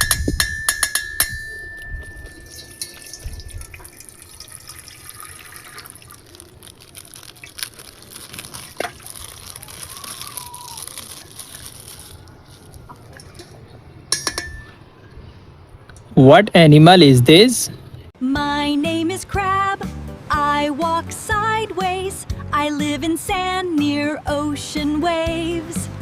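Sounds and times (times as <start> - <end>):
water sloshing and dripping: 1.7 - 16.1.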